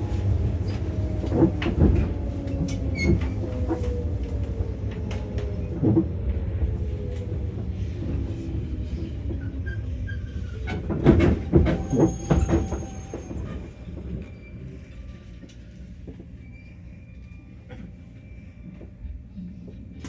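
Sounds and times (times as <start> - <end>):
train running: 0.0 - 20.0
faint squeal of wheels and brakes: 2.6 - 3.9, 9.3 - 19.5
train wheel clatter over rail joints: 10.4 - 14.1.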